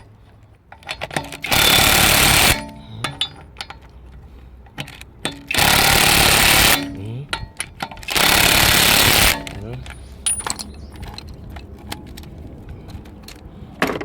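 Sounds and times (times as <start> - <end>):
light metal clicks and clanks: 2.5 - 5.6, 6.7 - 8.1, 9.3 - 14.0
impact wrench hammering: 5.2 - 9.6.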